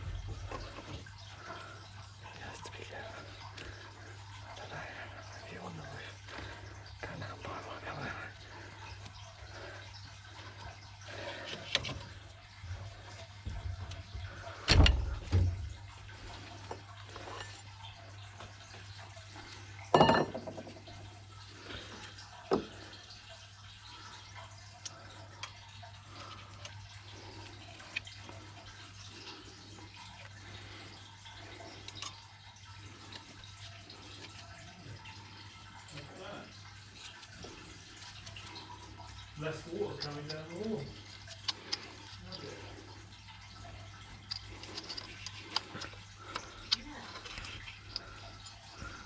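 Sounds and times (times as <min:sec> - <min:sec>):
water trickling and dripping: 0:00.0 - 0:49.0.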